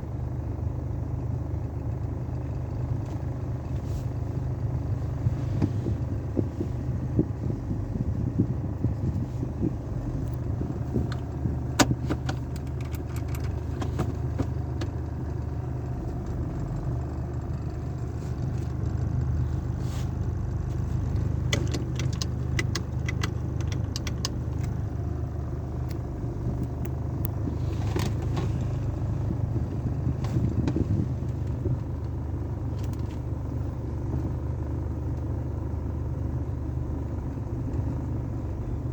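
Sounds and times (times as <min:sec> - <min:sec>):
car wash machinery rumbling: 0:02.2 - 0:35.0.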